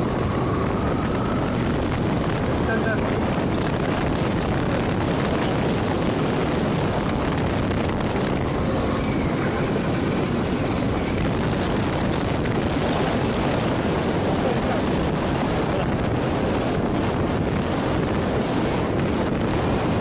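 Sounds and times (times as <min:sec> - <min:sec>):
road noise: 0:00.0 - 0:20.0
wind noise on microphone: 0:00.0 - 0:20.0.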